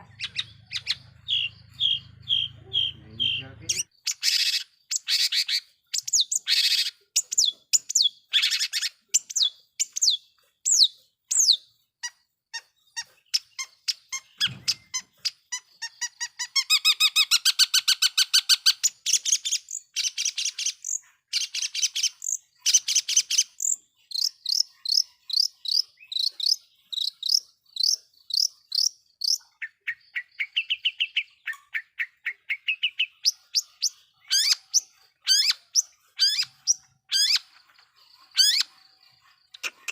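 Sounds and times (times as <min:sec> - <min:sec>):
shrike singing: 0:00.0 - 0:03.9.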